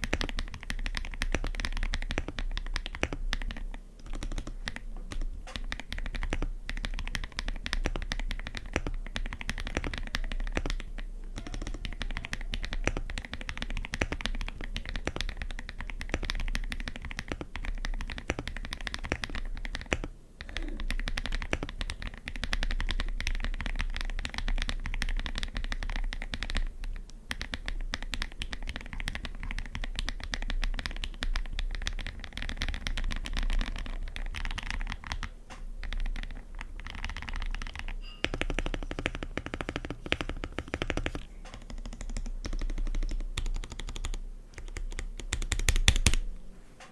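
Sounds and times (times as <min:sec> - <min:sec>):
mechanical keyboard typing: 0:00.0 - 0:46.3.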